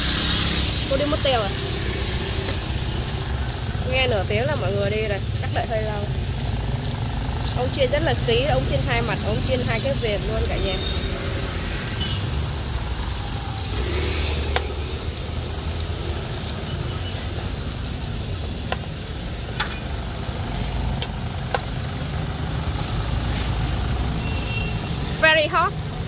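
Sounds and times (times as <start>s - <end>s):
street traffic rumble: 0.0s - 26.0s
food sizzling in a pan: 0.2s - 26.0s
wooden tongs clicking: 14.4s - 24.0s.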